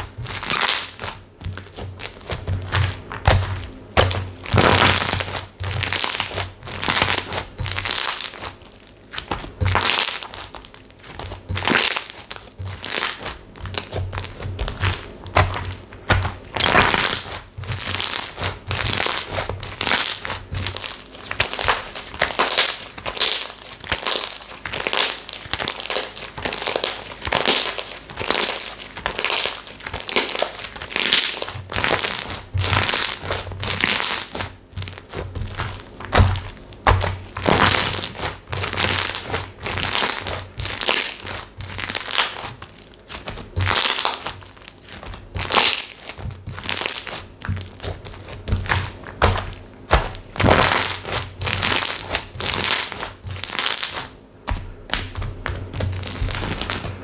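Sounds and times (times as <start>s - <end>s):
slime squishing by hand: 0.0s - 57.0s.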